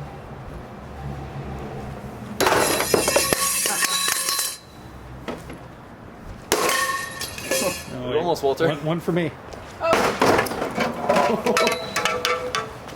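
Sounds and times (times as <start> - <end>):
glass pieces clinking: 2.5 - 4.6, 6.6 - 7.9.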